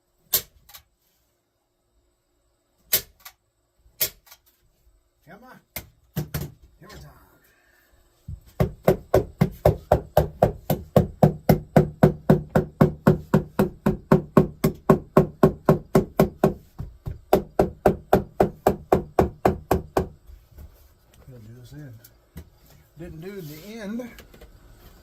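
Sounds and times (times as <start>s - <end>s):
rapid hammer blows on wood: 8.3s - 20.4s.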